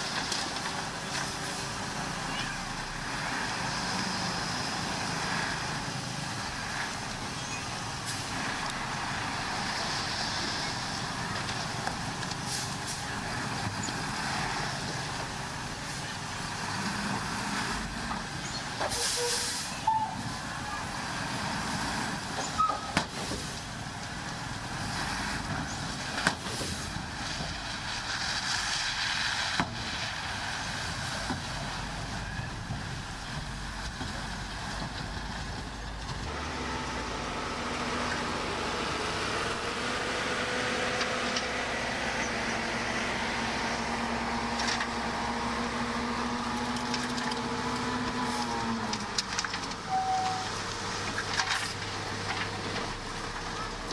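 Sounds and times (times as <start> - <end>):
heavy diesel machines running: 0.0 - 53.9
air hiss: 18.9 - 19.8.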